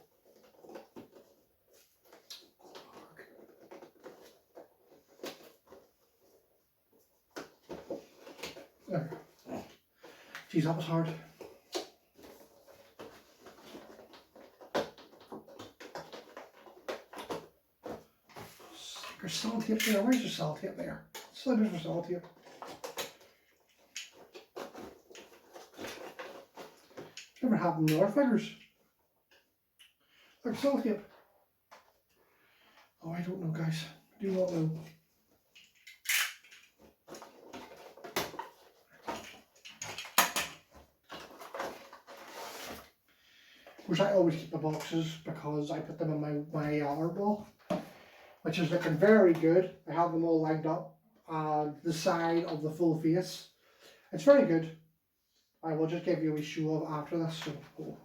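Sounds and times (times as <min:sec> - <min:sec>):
packaging rustling and clicking: 0:22.2 - 0:27.4, 0:35.5 - 0:42.9.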